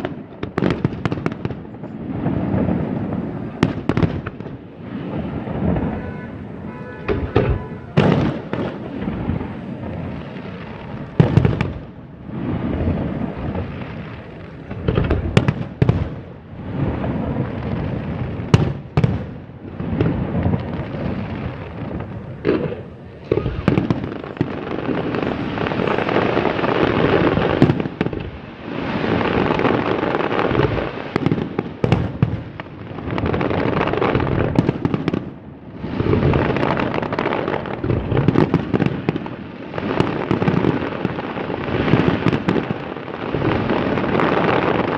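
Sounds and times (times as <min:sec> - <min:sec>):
fireworks crackling: 0:00.0 - 0:44.9
fireworks shells bursting: 0:06.7 - 0:09.1, 0:22.0 - 0:28.4.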